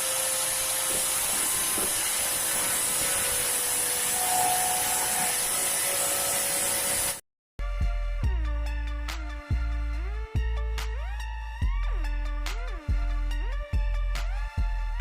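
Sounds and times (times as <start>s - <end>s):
loud steady hiss: 0.0s - 7.2s.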